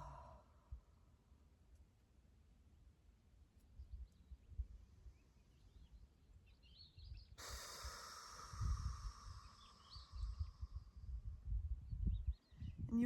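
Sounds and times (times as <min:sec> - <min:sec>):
breathy exhale through mouth: 0:07.4 - 0:11.3
birds chirping: 0:09.1 - 0:11.1.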